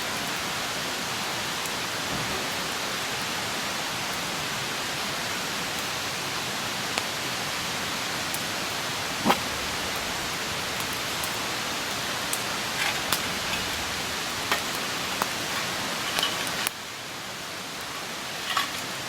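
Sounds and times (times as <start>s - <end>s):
campfire burning with hiss: 0.0s - 19.0s
sharp crackling pops: 9.0s - 16.8s.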